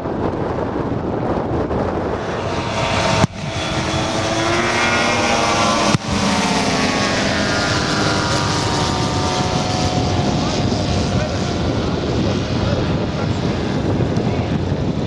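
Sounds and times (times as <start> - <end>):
model plane engine drone: 0.0 - 15.0.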